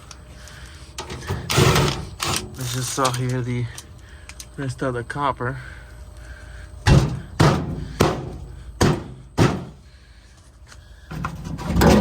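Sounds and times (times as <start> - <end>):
sharp knocks on panels: 6.9 - 9.8.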